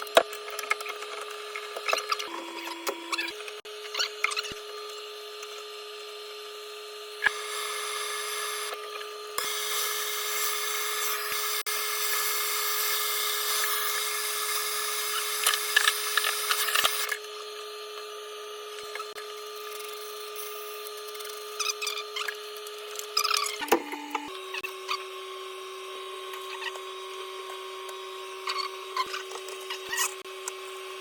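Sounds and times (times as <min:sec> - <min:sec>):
power tool running: 0:00.0 - 0:31.0.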